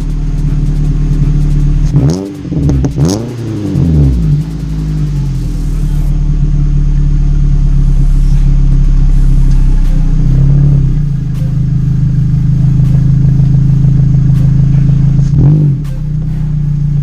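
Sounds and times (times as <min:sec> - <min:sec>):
car engine running loud: 0:00.0 - 0:17.0.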